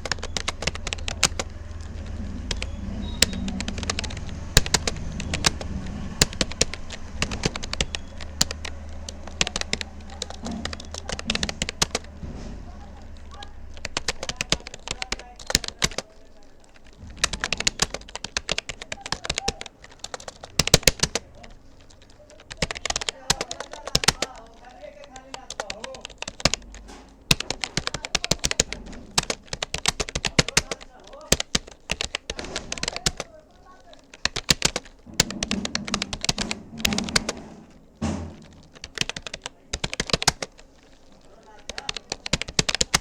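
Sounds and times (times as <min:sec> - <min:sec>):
keyboard key clicks: 0:00.0 - 0:33.3, 0:33.9 - 0:43.0
dull thump: 0:34.9 - 0:39.0.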